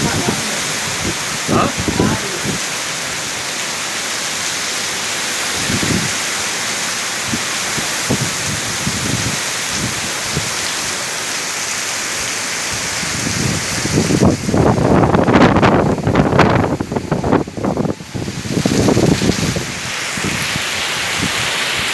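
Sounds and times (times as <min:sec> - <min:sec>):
wind buffeting microphone: 0:00.0 - 0:03.4, 0:05.5 - 0:06.2, 0:07.2 - 0:10.6, 0:12.7 - 0:21.9
heavy rain pouring: 0:00.0 - 0:21.9.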